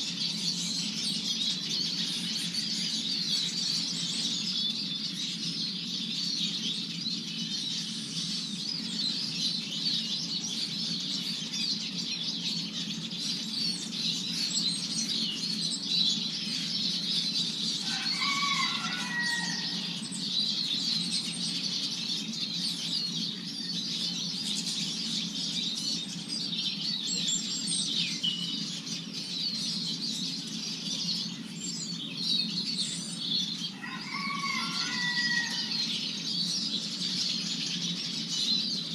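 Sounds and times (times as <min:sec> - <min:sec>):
siskins twittering: 0:00.0 - 0:38.9.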